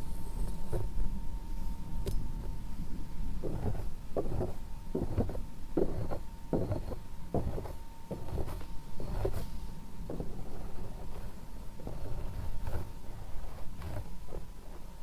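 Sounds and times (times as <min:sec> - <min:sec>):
faint steady hum: 0:00.0 - 0:15.0
soft rubbing strokes: 0:03.4 - 0:14.9.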